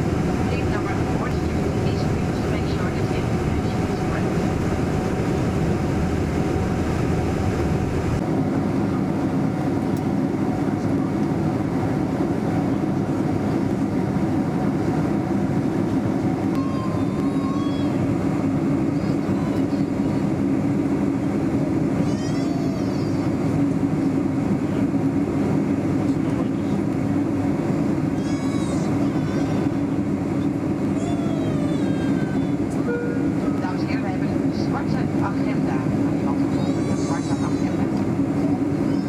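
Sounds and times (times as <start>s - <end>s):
airplane cabin rumble: 0.0s - 39.0s
faint voices: 0.4s - 4.7s, 28.1s - 39.0s.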